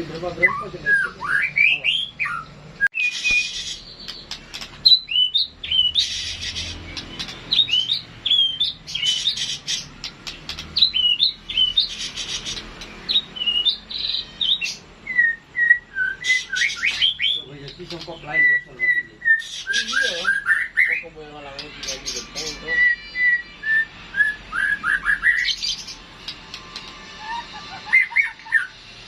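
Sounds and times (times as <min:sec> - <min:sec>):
harsh rasping bird calls: 0:00.0 - 0:29.0
bird singing whistled notes: 0:00.3 - 0:26.0, 0:27.2 - 0:28.8.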